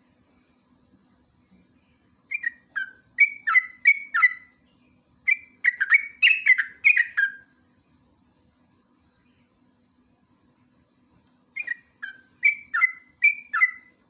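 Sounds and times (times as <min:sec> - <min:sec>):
bird singing chattering notes: 0:02.3 - 0:04.5, 0:05.3 - 0:07.4, 0:11.6 - 0:13.9.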